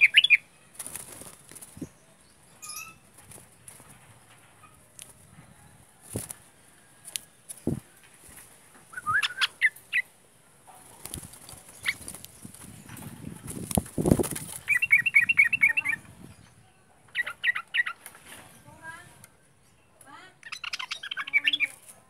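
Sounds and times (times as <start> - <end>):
bird chirping: 0.0 - 5.2, 8.8 - 10.1, 11.3 - 18.0, 18.6 - 21.8
clipped bird notes: 7.0 - 10.1.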